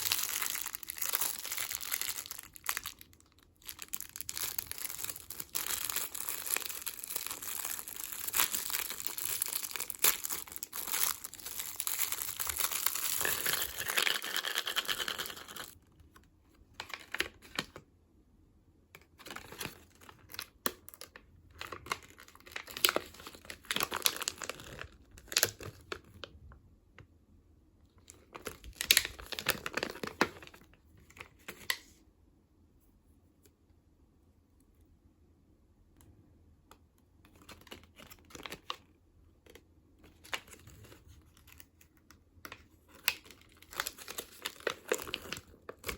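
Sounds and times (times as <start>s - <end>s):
plastic wrapper crinkling: 0.0s - 15.8s, 19.2s - 26.4s, 28.0s - 31.8s, 39.5s - 45.9s.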